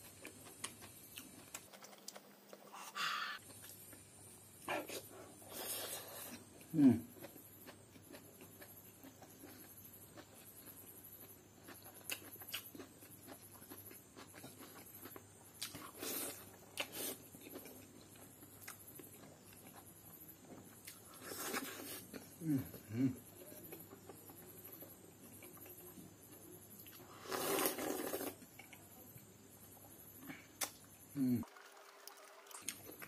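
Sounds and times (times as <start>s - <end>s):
man chewing and lip smacking: 0.0s - 4.0s, 5.7s - 27.0s, 30.6s - 31.0s.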